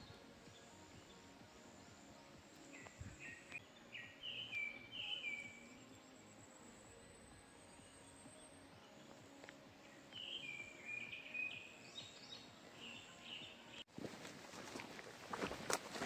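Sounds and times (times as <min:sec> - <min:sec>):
insects buzzing: 0:00.0 - 0:16.0
songbird chirping: 0:00.0 - 0:16.0
footsteps on gravel: 0:13.9 - 0:16.0.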